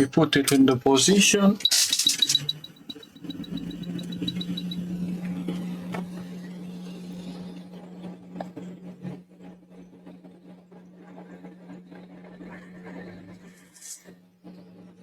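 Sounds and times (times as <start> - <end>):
light clicks: 1.6 - 4.8
rapid high beeping: 1.6 - 4.8
workbench equipment hum: 1.6 - 4.8.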